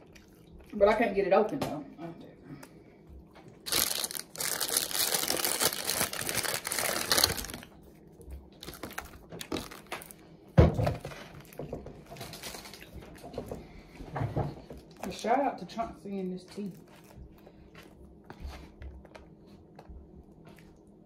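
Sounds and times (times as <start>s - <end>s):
plastic packaging crinkling: 3.6s - 7.9s, 8.6s - 10.2s, 11.3s - 12.9s.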